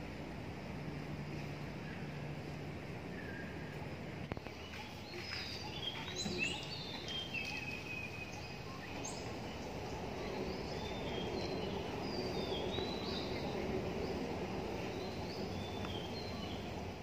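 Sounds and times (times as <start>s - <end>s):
birds chirping and whistling: 4.4s - 14.2s.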